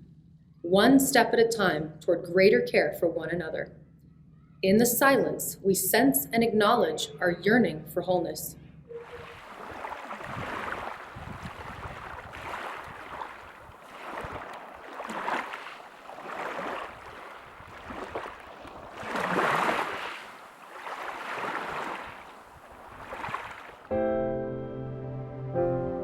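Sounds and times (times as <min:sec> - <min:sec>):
ocean waves washing in: 0:08.9 - 0:23.9.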